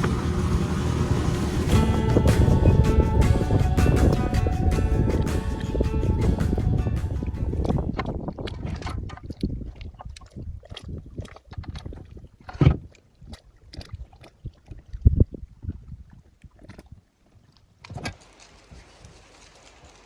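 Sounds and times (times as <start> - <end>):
boat knocking: 0.0 - 8.1
paddle splashing: 0.0 - 15.0.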